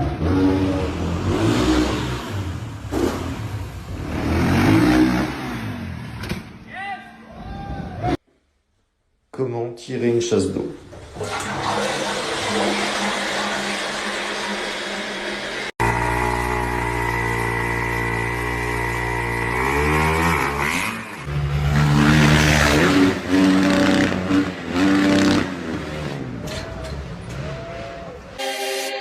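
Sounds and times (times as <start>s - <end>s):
motorcycle engine revving: 0.0s - 6.2s, 11.9s - 28.4s.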